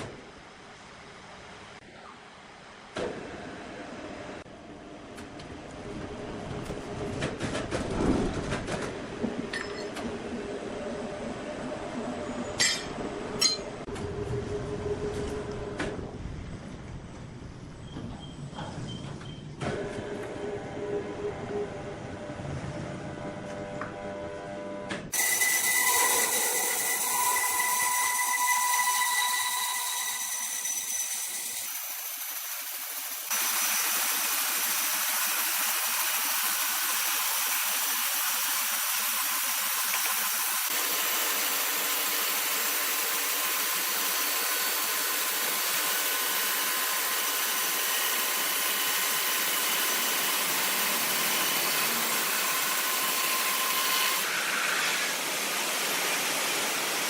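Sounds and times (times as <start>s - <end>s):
sawmill machinery running: 25.1s - 57.0s.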